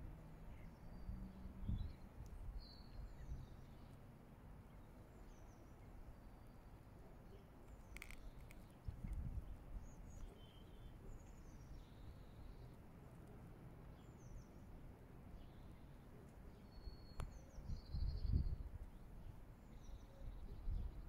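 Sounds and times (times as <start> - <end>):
small birds chirping: 4.7 - 21.0.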